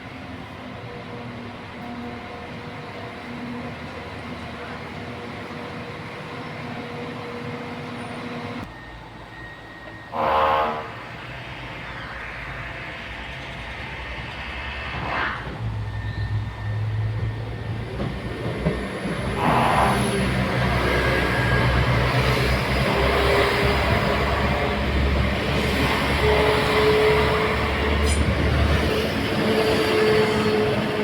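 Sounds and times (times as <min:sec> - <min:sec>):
train rumbling past: 0:00.0 - 0:31.0
train horn blast: 0:10.1 - 0:11.2, 0:19.4 - 0:20.3, 0:25.6 - 0:28.5, 0:29.5 - 0:31.0.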